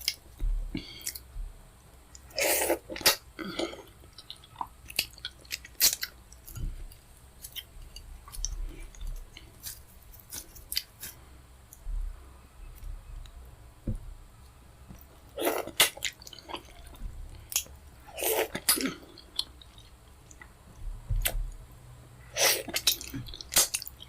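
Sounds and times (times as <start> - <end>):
soft chewing: 2.1 - 11.9, 14.9 - 21.7, 22.3 - 24.0.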